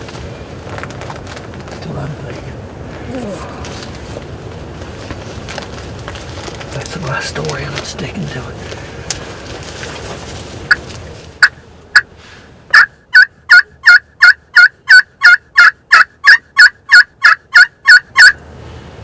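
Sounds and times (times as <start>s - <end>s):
turkey yelps: 12.7s - 18.4s.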